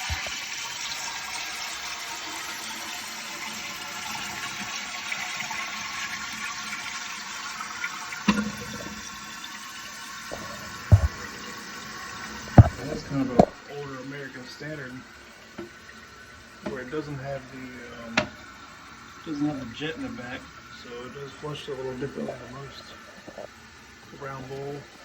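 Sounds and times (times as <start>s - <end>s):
toilet flushing: 0.0s - 25.0s
water running into tank: 0.0s - 25.0s
short knocks: 10.3s - 11.3s, 12.6s - 13.6s.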